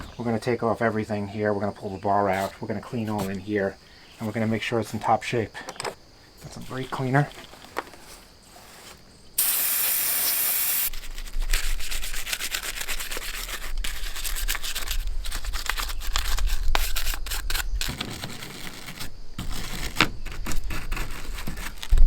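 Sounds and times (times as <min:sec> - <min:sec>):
scratchy scrubbing: 0:07.2 - 0:09.1, 0:10.9 - 0:22.0
spray can hissing: 0:09.4 - 0:10.9.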